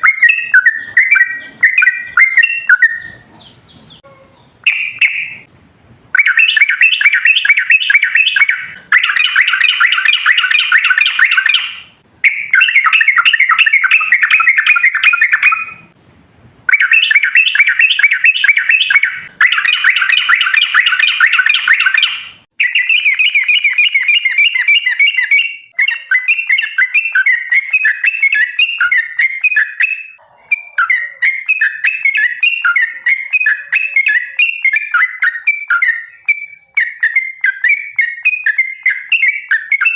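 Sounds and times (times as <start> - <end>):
bulbul singing bubbling song: 0.0 - 3.2, 6.2 - 15.9, 16.7 - 30.2
bird chatter with high notes: 16.7 - 39.9.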